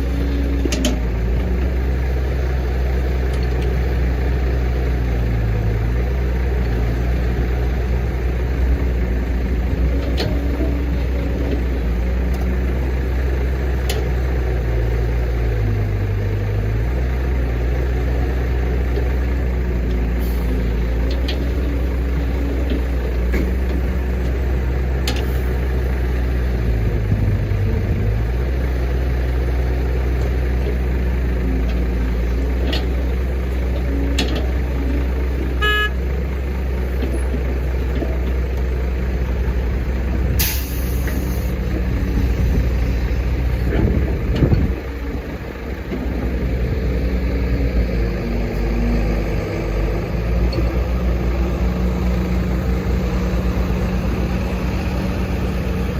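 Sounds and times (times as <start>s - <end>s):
excavator diesel engine running: 0.0s - 55.9s
horn toot: 35.6s - 36.0s
short hiss: 40.4s - 41.5s.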